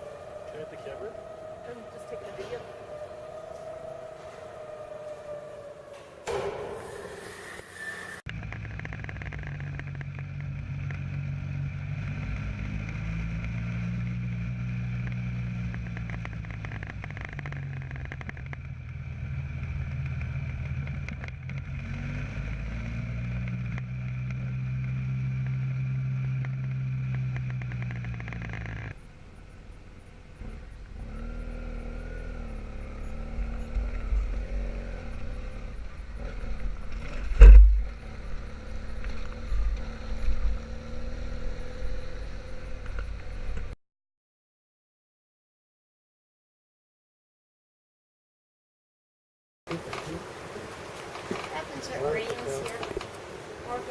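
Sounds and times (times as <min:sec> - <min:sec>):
rough vehicle engine: 0:00.0 - 0:43.8, 0:49.7 - 0:53.9
motorcycle engine running: 0:08.3 - 0:43.8.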